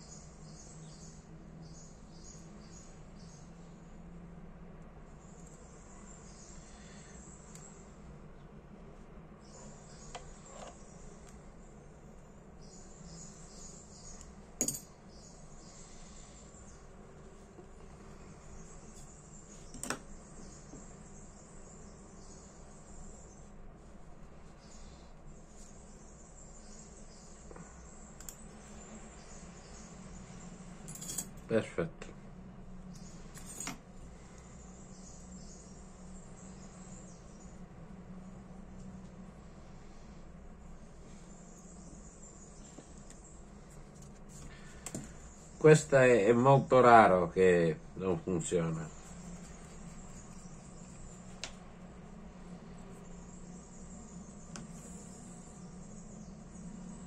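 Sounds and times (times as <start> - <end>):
low background hum: 0.0 - 57.0
faint high chirring: 9.3 - 31.8
soft clicks of small parts: 28.2 - 28.4.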